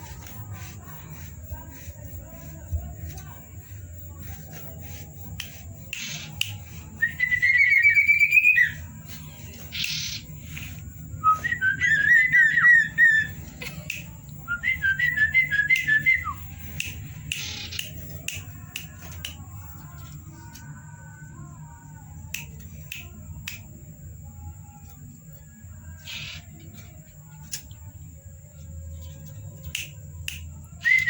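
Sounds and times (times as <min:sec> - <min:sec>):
scratchy swishes: 0:00.0 - 0:07.0
bird singing whistled notes: 0:07.0 - 0:08.8, 0:11.2 - 0:13.4.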